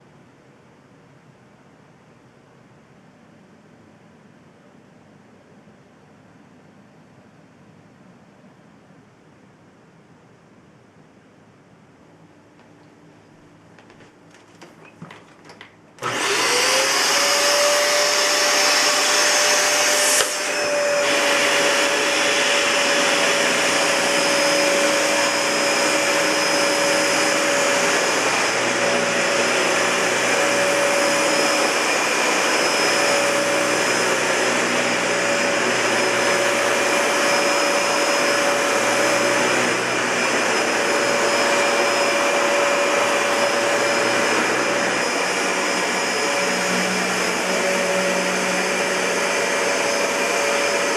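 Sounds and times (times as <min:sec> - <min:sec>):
vacuum cleaner running: 0:13.8 - 0:50.9.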